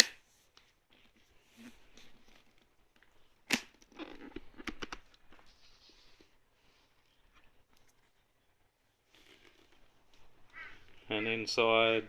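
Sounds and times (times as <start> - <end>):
helmet shell rubbing: 9.0 - 11.1.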